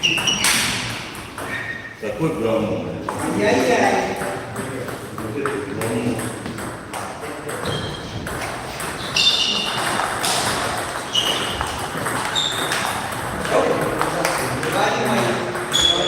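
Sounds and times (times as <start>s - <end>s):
high-pitched squeaks: 0.0s - 2.0s, 7.6s - 13.0s
table tennis ball clicking: 4.2s - 15.8s.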